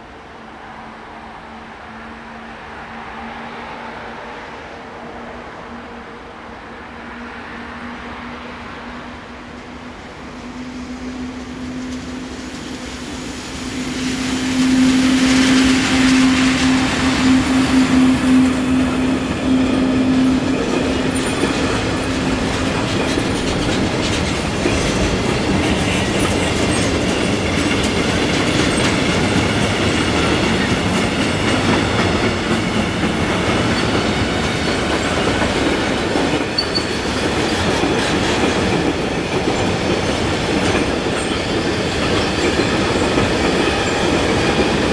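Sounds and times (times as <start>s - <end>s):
train hum: 0.0s - 44.9s
train wheels on rails: 1.4s - 44.9s.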